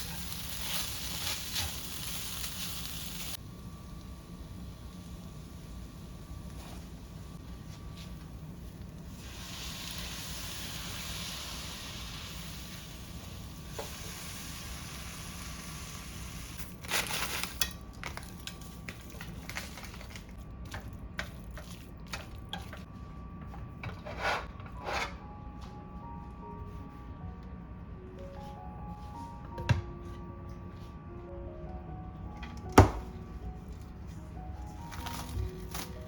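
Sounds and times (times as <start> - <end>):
food sizzling in a pan: 0.0 - 3.4, 9.1 - 17.4.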